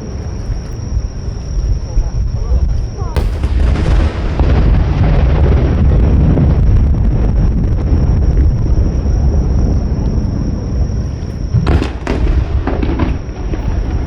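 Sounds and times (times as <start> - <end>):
fireworks bursting with rumble: 0.0 - 14.0
crackling firework bangs: 3.2 - 14.0.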